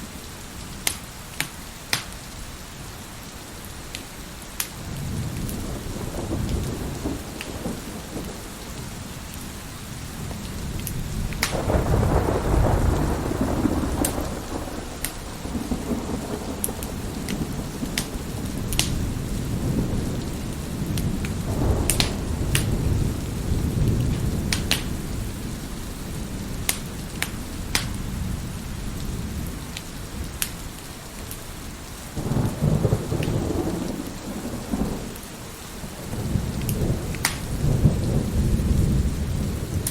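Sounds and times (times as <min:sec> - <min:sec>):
heavy rain: 0:00.0 - 0:39.9
wood fire crackling and popping: 0:00.8 - 0:02.2, 0:03.9 - 0:05.6, 0:10.3 - 0:19.0, 0:20.9 - 0:23.0, 0:23.8 - 0:25.1, 0:26.6 - 0:28.1, 0:29.7 - 0:31.4, 0:36.6 - 0:37.5
thunder rumbling: 0:04.8 - 0:31.2, 0:32.2 - 0:39.9.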